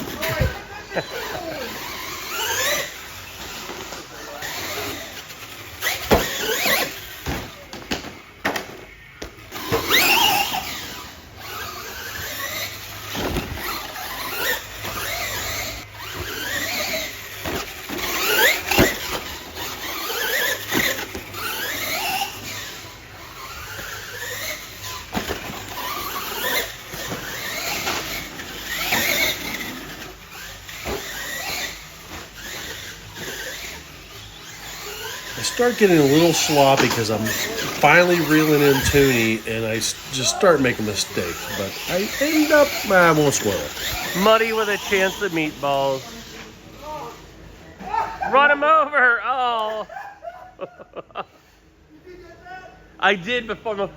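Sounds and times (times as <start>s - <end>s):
electric motors whining: 0.0s - 48.7s.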